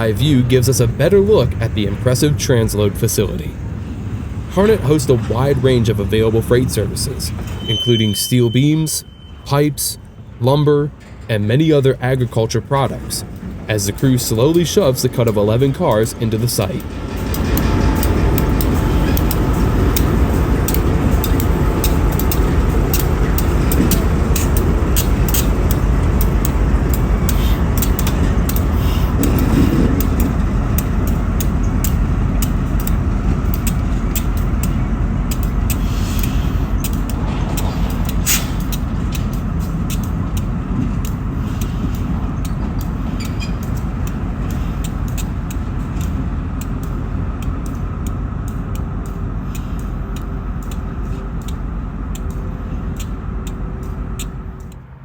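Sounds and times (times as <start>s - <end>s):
diesel locomotive rumble: 0.0s - 55.0s
freight cars clicking and knocking: 0.0s - 55.0s
train wheel squeal: 6.5s - 10.4s, 15.9s - 26.0s, 41.4s - 43.8s.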